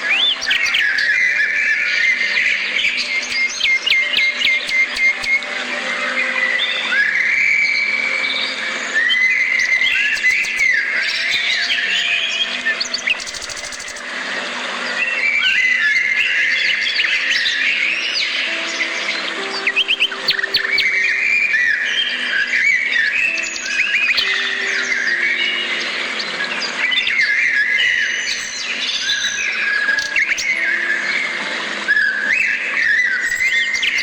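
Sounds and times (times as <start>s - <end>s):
birds chirping and twittering: 0.0s - 34.0s.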